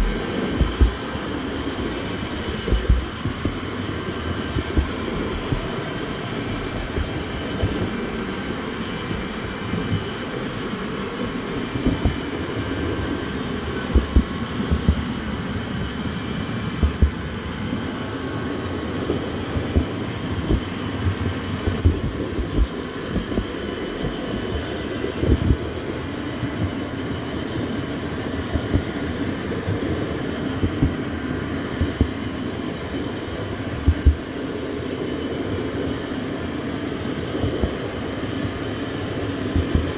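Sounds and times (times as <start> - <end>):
low knocks of train: 0.0 - 1.5, 2.2 - 12.4, 13.0 - 15.4, 19.1 - 25.8, 33.8 - 34.3, 39.5 - 39.9
train rumbling: 0.0 - 27.0, 39.3 - 39.9.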